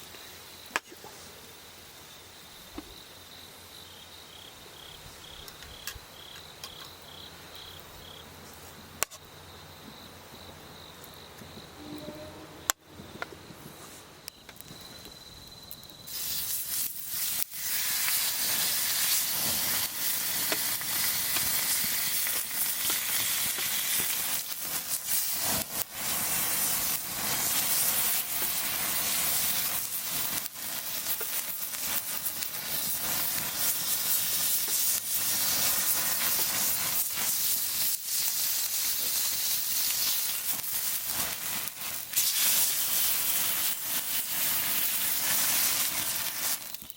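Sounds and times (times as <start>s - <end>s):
faint high insect-like tone: 0.0s - 25.4s
fire crackles: 0.0s - 46.9s
food sizzling over campfire: 0.0s - 46.9s.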